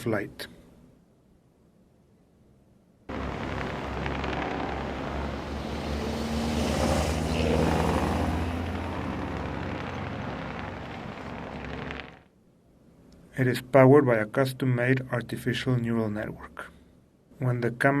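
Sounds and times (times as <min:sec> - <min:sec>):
vehicle engine passing: 0:03.1 - 0:12.3.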